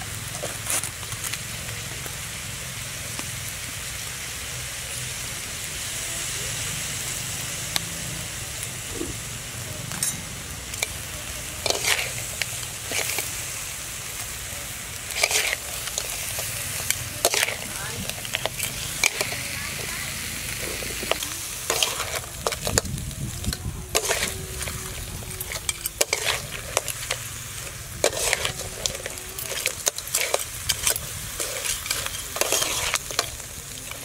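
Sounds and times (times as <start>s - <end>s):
crabs sizzling in a wok: 0.0s - 34.0s
metal spoon scraping a wok: 9.9s - 34.0s.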